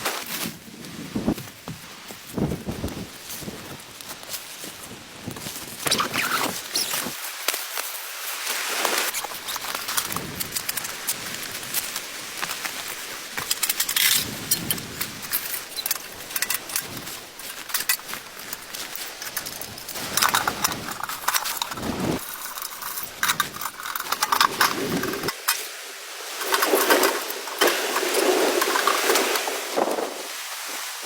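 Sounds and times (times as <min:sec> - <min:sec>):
small clicks and scrapes: 0:08.8 - 0:25.7, 0:26.4 - 0:29.5
gear rustling and clattering: 0:08.9 - 0:25.7, 0:26.3 - 0:30.0.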